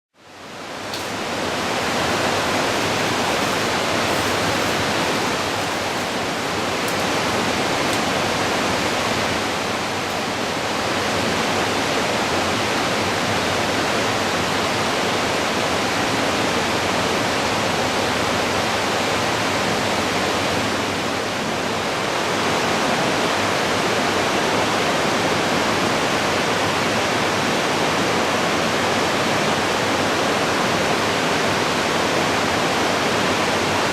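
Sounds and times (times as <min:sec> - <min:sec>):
waterfall roaring: 0:00.6 - 0:33.9.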